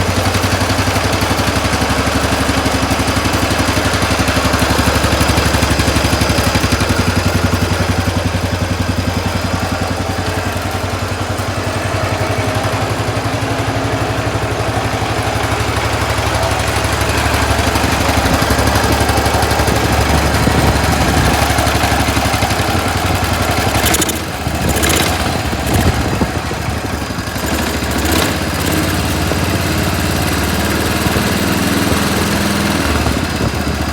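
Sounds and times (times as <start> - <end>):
lawn tractor engine idling: 0.0 - 33.9.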